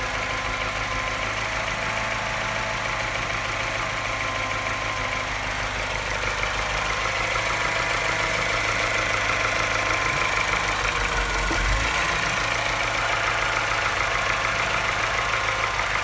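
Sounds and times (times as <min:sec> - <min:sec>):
engine idling with tapping knock: 0:00.0 - 0:16.0.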